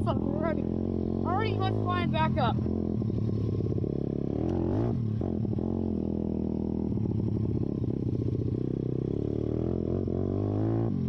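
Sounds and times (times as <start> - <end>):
motorbike engine revving: 0.0 - 11.0.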